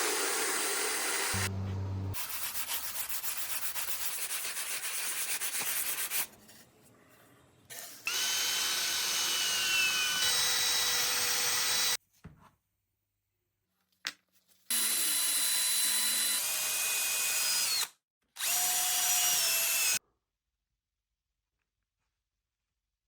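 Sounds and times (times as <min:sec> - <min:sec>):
power tool whining: 0:00.0 - 0:02.1.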